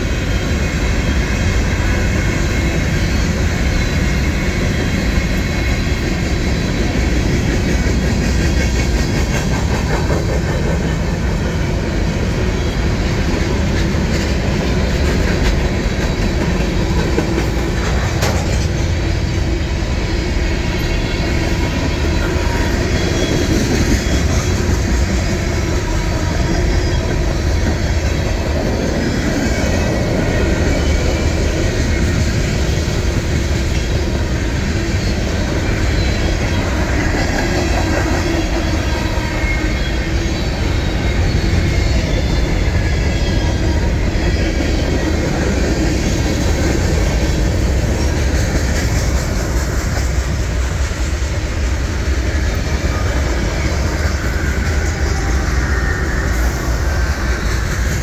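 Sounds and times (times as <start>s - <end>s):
wheels clickety-clack: 0.0s - 19.7s, 20.4s - 39.7s, 40.6s - 58.0s
steel wheels rumbling on rail: 0.0s - 58.0s.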